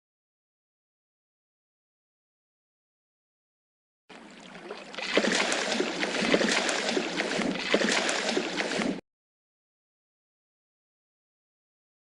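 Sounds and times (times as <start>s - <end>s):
water splashing and sloshing: 4.1s - 9.0s.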